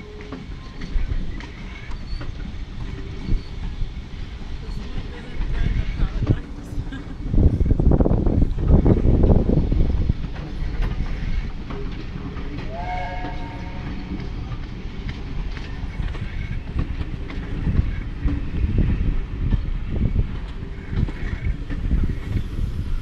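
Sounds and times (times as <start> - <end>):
train carriages rumbling past: 0.0 - 23.0
brief whistle-like tone: 12.7 - 14.3.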